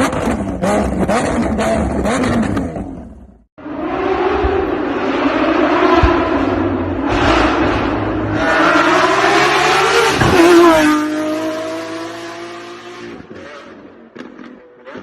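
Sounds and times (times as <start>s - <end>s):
sports car engine accelerating: 9.0s - 15.0s.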